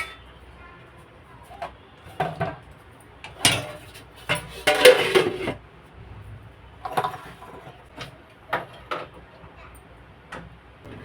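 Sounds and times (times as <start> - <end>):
metal knocks of pots: 0.0 - 0.3, 3.3 - 5.6
pots and utensils clattering: 0.0 - 0.3, 1.5 - 2.6, 3.2 - 5.6, 6.8 - 9.1.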